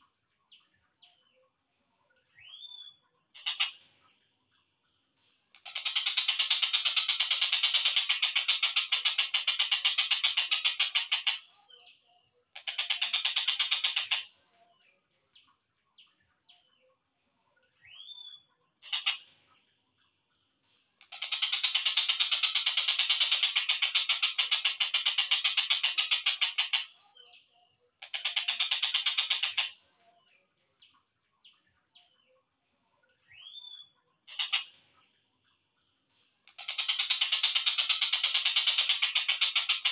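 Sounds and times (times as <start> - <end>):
faint bird chirps: 0.0 - 39.9
kingfisher rattling call: 5.6 - 11.5, 12.6 - 14.3, 21.1 - 26.9, 28.0 - 29.8, 36.6 - 39.9.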